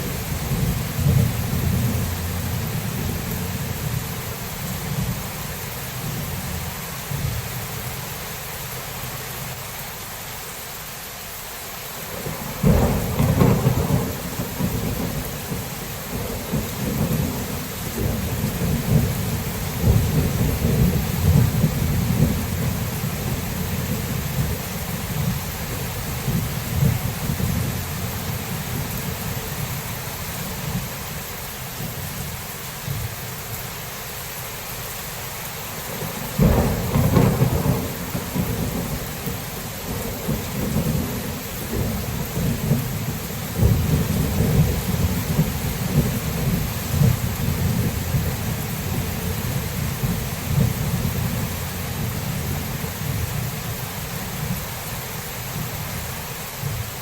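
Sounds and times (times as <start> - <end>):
rolling thunder: 0.0 - 5.3, 12.1 - 29.7, 35.9 - 53.5
rain hiss: 0.0 - 57.0
sharp thunderclap: 12.2 - 24.6, 36.3 - 49.0.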